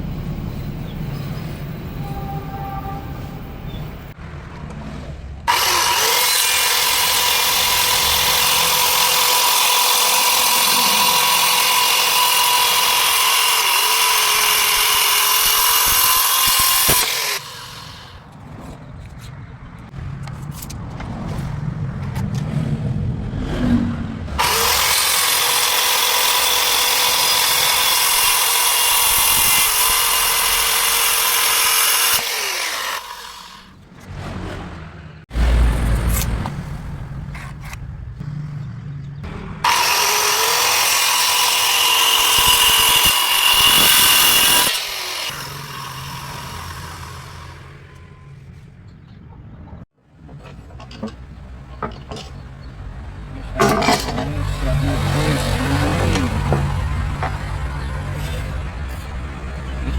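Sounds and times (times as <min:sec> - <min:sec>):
power tool whining: 0:05.5 - 0:18.3, 0:24.4 - 0:33.8, 0:39.6 - 0:48.3, 0:53.6 - 0:58.5.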